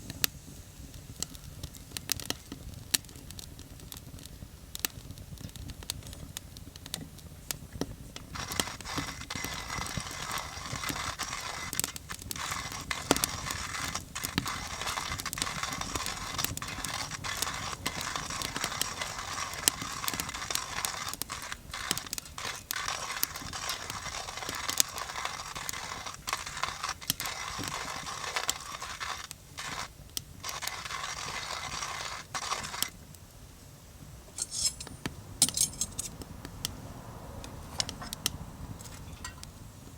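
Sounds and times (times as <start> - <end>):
coffee grinder grinding beans: 8.2 - 33.0.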